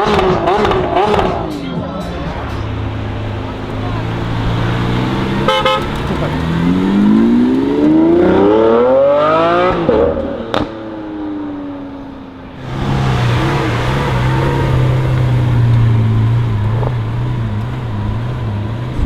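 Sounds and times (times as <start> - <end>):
car engine accelerating: 0.0 - 19.0
low engine hum: 1.1 - 8.6, 12.6 - 19.0
sharp exhaust crack: 2.6 - 8.0, 12.6 - 19.0.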